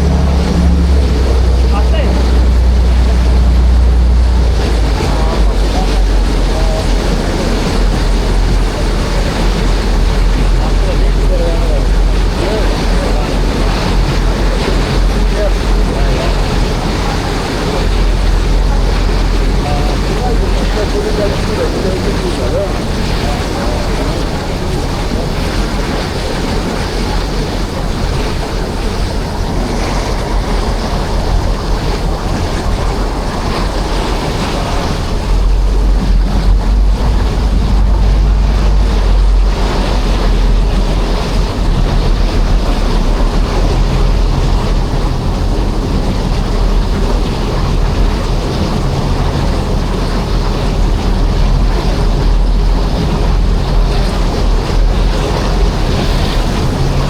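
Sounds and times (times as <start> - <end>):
ferry engine rumble: 0.0 - 57.0
water rushing past hull: 0.0 - 57.0
wind buffeting microphone: 0.0 - 57.0.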